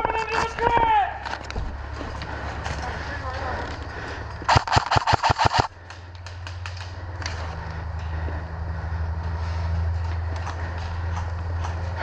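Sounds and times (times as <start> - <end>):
airsoft gun full-auto burst: 4.5 - 5.7
distant shots clicking: 4.5 - 7.0.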